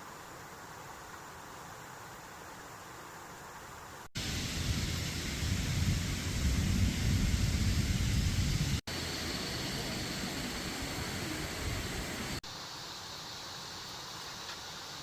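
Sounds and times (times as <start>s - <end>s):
heavy rain pouring: 4.2s - 12.4s.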